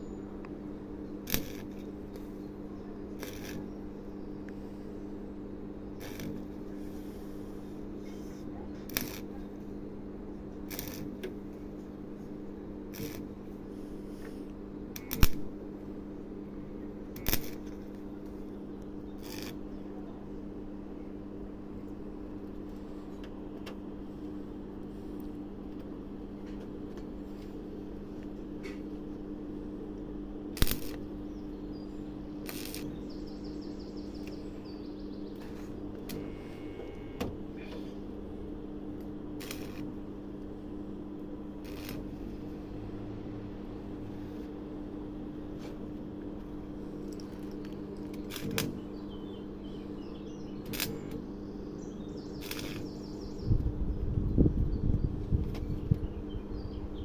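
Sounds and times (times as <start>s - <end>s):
steady electrical hum: 0.0s - 57.0s.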